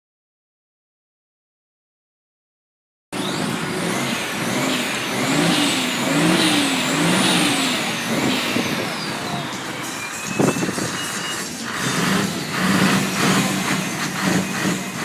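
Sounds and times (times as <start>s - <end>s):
vehicle noise: 3.2s - 15.0s
wailing siren: 3.2s - 15.0s.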